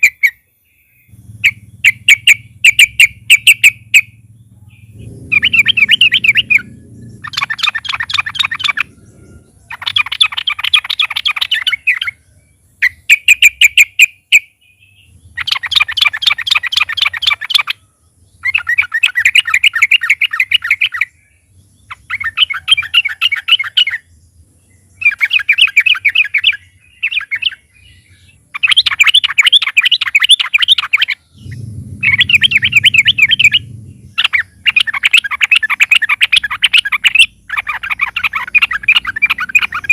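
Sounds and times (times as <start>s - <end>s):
faint low hum: 0.4s - 12.9s, 30.0s - 39.9s
bird bubbling chatter: 1.1s - 12.2s, 15.4s - 21.1s, 28.3s - 39.9s.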